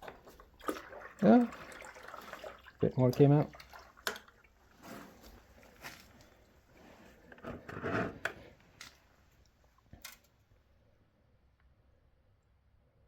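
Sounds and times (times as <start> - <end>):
scrapes and rustles: 4.7 - 9.1.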